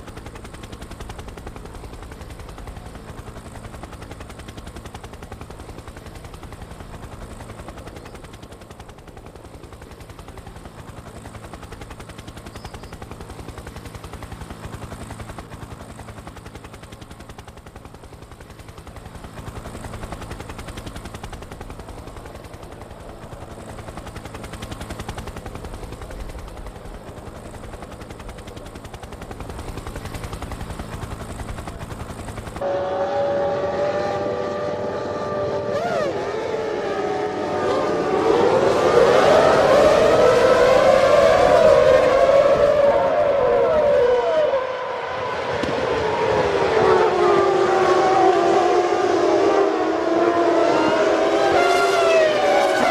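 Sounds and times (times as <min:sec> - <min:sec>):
racing car engines pulsing: 0:32.6 - 0:52.9
racing car revving: 0:33.0 - 0:52.9.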